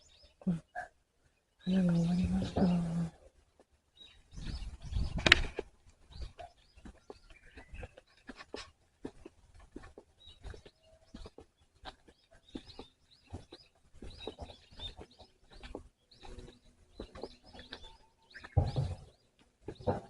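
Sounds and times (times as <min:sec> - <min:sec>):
small birds chirping: 0:00.0 - 0:20.0
soft knocks and rustles: 0:18.4 - 0:20.0.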